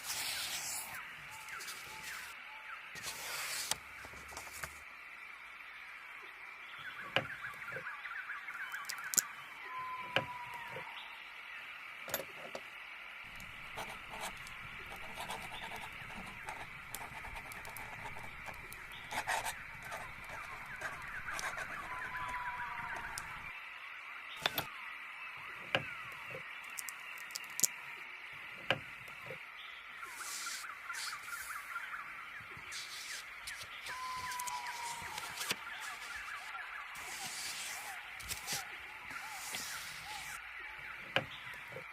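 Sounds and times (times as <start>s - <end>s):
birds chirping: 6.7s - 12.4s, 13.3s - 23.5s, 25.4s - 41.9s.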